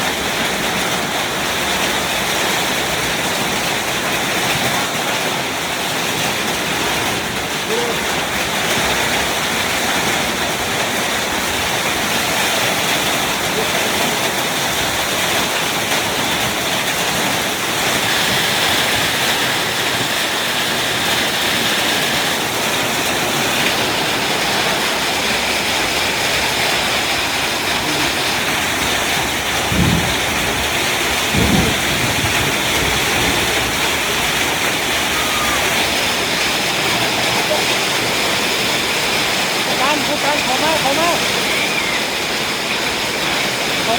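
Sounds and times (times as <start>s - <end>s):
heavy rain and hail: 0.0s - 43.9s
low thump: 29.7s - 30.6s.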